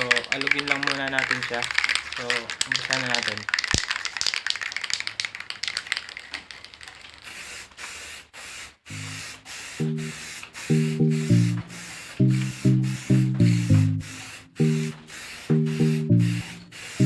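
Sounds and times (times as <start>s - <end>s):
aerosol can rattling when shaken: 0.0s - 17.0s
spray paint hissing: 0.0s - 17.0s
music with plucked notes: 9.8s - 14.0s, 15.5s - 16.4s.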